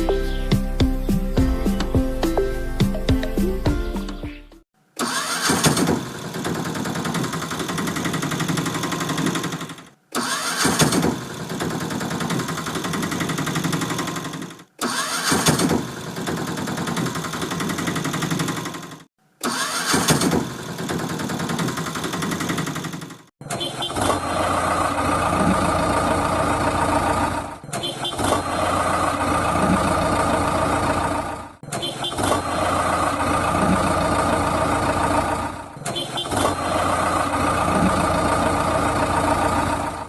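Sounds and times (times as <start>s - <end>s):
music: 0.0s - 4.6s
engine starting with whine: 5.0s - 40.0s.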